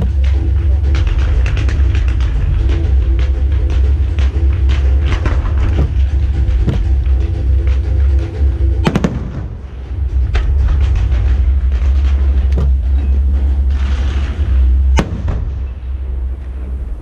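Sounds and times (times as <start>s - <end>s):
show music: 0.0s - 15.4s
low rumble: 0.0s - 17.0s
fireworks bangs: 8.8s - 9.6s, 13.7s - 15.8s.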